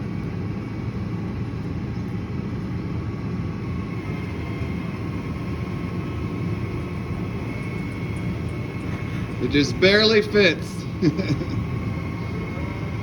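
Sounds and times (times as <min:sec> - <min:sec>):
faint steady whine: 0:00.0 - 0:13.0
truck engine rumbling: 0:00.0 - 0:13.0.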